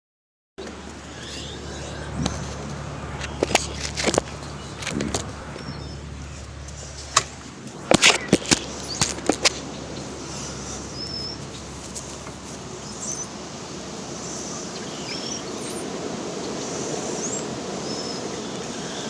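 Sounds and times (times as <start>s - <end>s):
steady background noise: 0.6s - 19.0s
bird chirping faintly: 0.9s - 13.5s.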